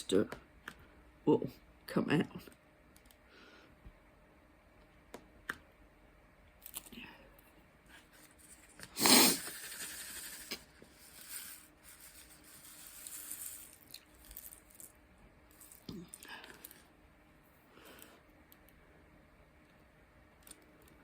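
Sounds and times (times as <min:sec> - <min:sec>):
rustling scrape: 0:08.0 - 0:14.9.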